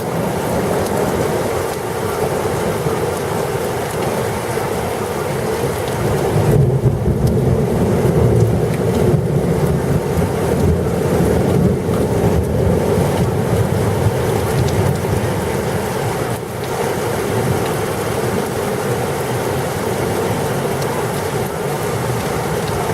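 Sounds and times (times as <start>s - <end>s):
thunderstorm rumbling roar: 6.0s - 15.6s.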